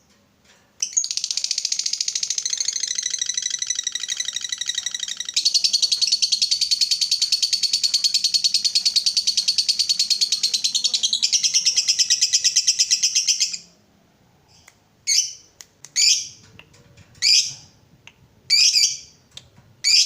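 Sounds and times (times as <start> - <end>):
lovebird trilling chatter: 0.9 - 13.6.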